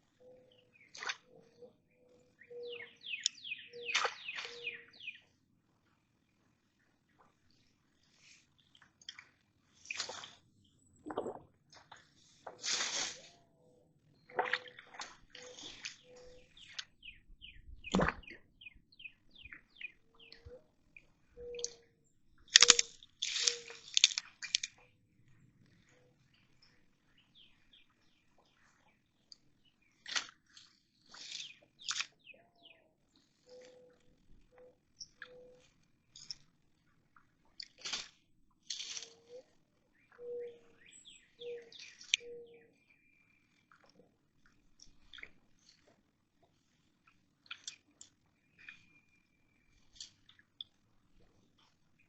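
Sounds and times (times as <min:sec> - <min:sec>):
songbird chirping: 0:00.0 - 0:05.4, 0:12.2 - 0:36.5, 0:38.7 - 0:44.1, 0:47.0 - 0:52.0
birds chirping and calling: 0:00.2 - 0:05.2, 0:15.4 - 0:20.6, 0:21.4 - 0:23.8, 0:40.0 - 0:42.9
water splashing: 0:11.0 - 0:12.0, 0:14.3 - 0:16.8
sharp click: 0:22.5 - 0:24.7.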